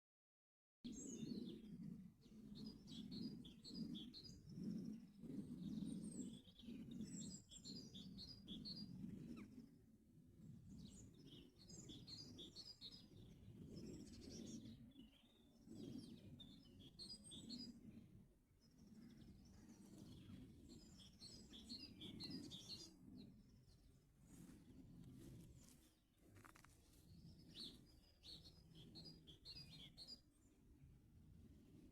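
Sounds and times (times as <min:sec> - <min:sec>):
birds chirping and trilling: 0:27.5 - 0:30.2.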